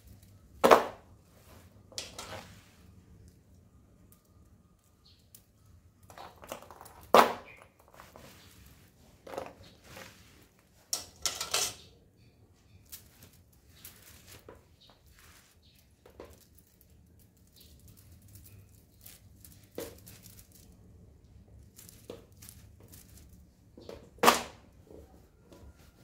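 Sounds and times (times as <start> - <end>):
metal tools clinking: 10.9 - 14.2.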